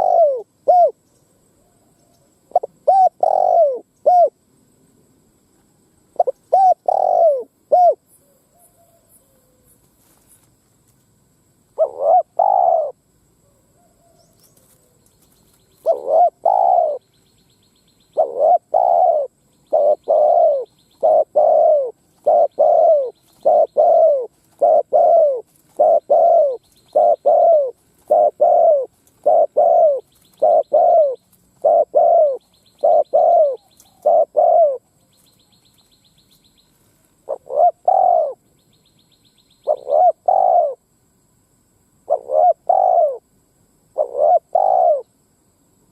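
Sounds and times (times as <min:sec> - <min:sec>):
dove cooing: 0:00.0 - 0:01.0, 0:01.6 - 0:04.4, 0:06.2 - 0:09.7, 0:11.8 - 0:17.0, 0:18.1 - 0:35.3, 0:37.2 - 0:38.4, 0:39.6 - 0:40.8, 0:42.1 - 0:43.2, 0:44.0 - 0:45.1.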